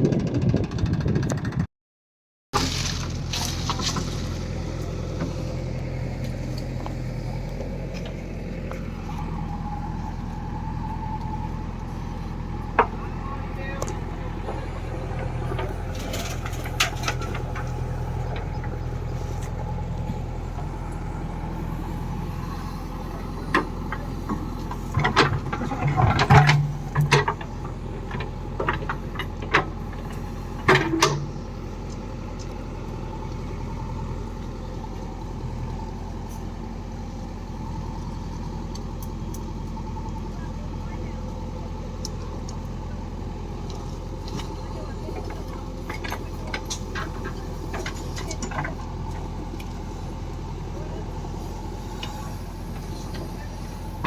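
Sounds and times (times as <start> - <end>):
diesel engine running: 2.6 - 54.0
knocks and clatter: 23.5 - 31.4.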